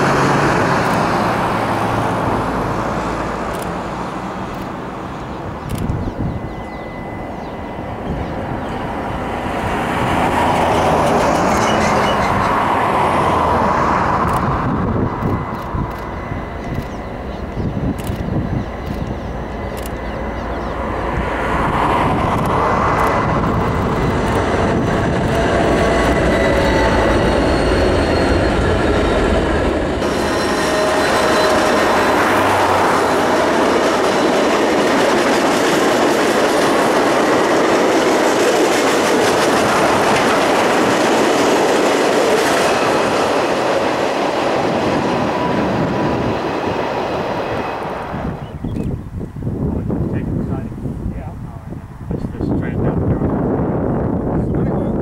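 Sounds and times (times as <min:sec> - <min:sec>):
wheels rushing on rail: 0:00.0 - 0:55.0
wheel squeal: 0:11.5 - 0:12.6, 0:25.8 - 0:29.4, 0:30.0 - 0:32.0.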